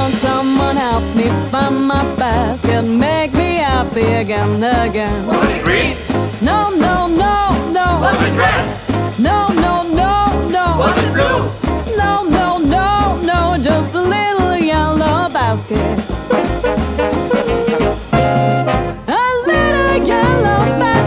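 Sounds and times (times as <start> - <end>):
bass line: 0.0 - 21.0
drum beat: 0.0 - 21.0
swing band playing: 0.0 - 21.0.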